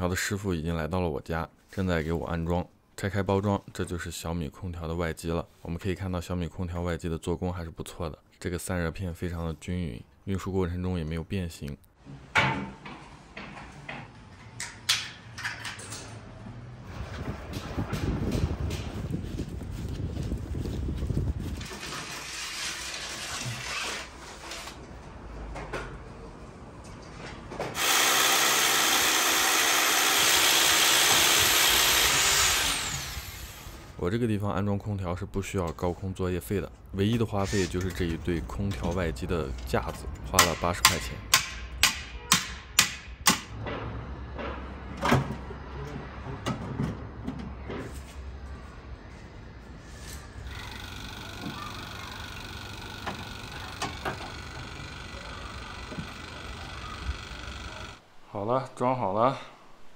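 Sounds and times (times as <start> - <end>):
electric drill running: 27.8 - 33.9, 50.4 - 58.0
scraping and handling noises: 37.1 - 39.0
hammer strikes: 40.4 - 44.7.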